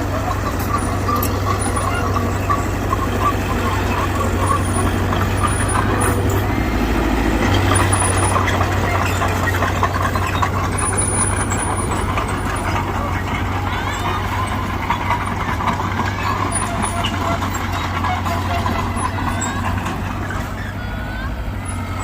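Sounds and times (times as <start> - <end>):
heavy diesel machinery engine drone: 0.0 - 22.0
metallic clatter: 7.4 - 20.5.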